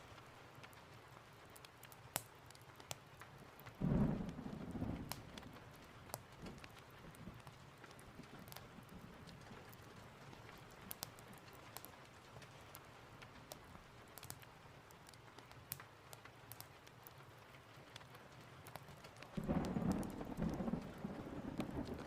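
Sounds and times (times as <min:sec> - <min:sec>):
sharp crackles: 0:00.0 - 0:22.0
steady rain: 0:00.0 - 0:22.0
thunder rumbling: 0:03.8 - 0:05.8, 0:19.4 - 0:22.0.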